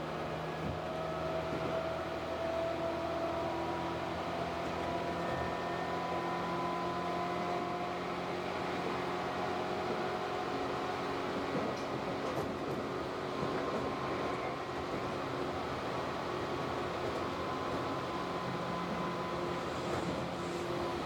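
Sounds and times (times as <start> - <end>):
train rolling rumble: 8.0 - 21.0.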